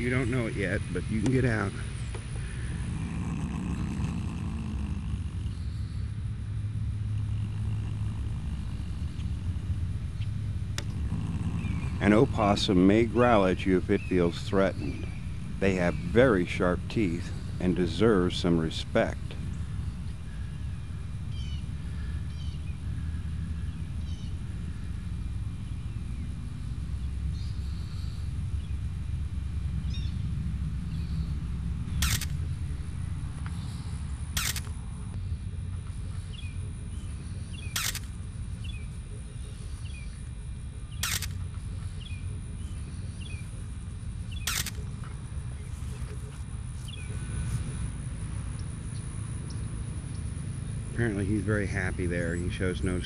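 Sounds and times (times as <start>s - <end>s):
steady low rumble: 0.0s - 53.0s
sharp clicks: 10.2s - 12.5s, 31.9s - 33.6s, 34.3s - 35.2s, 37.6s - 38.3s, 40.8s - 41.8s, 44.2s - 45.2s
faint short chirps: 44.3s - 44.8s.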